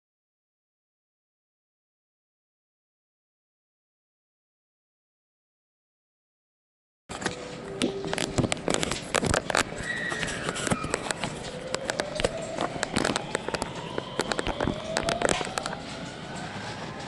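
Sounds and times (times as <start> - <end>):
traction motor whine: 8.9 - 17.0.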